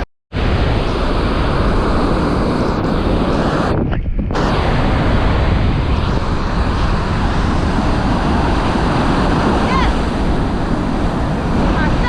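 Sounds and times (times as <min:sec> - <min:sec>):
wind buffeting microphone: 0:00.4 - 0:12.0
surf breaking: 0:04.4 - 0:12.0.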